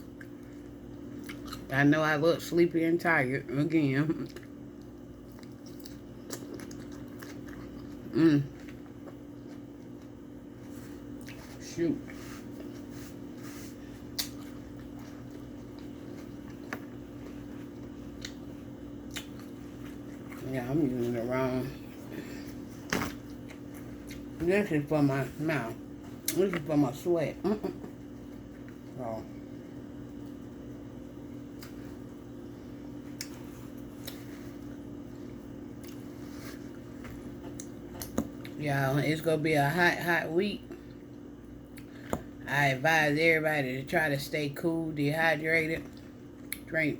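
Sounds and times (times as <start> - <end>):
person chewing food: 0.0 - 1.7, 4.2 - 20.4, 21.8 - 24.4, 32.9 - 38.6
steady low hum: 0.0 - 46.9.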